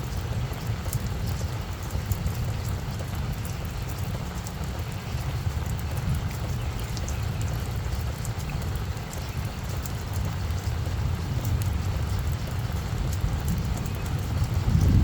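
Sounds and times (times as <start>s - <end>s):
rain falling on plants: 0.0s - 15.0s.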